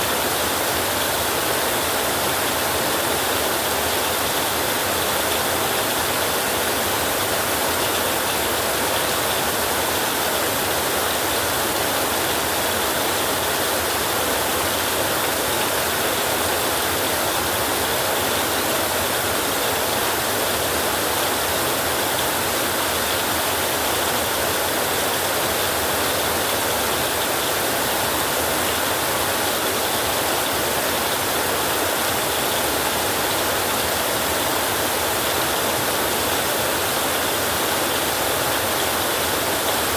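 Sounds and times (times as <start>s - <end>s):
heavy rain on a roof: 0.0s - 39.9s.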